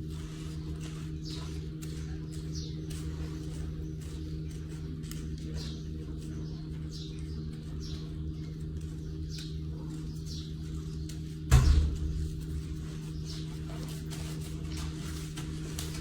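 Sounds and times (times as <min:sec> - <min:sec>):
steady low hum: 0:00.0 - 0:16.0
sharp thump: 0:11.5 - 0:12.3.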